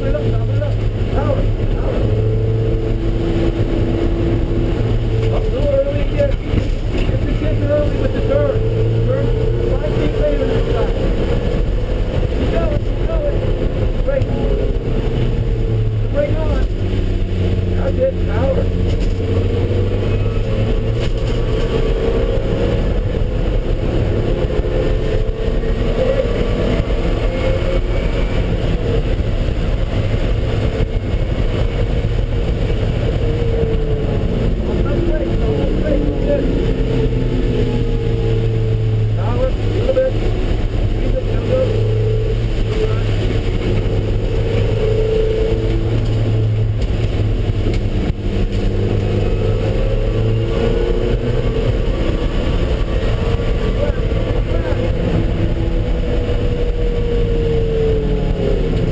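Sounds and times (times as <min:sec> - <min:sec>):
car engine running: 0:00.0 - 0:58.9
road and tyre noise: 0:00.0 - 0:58.9.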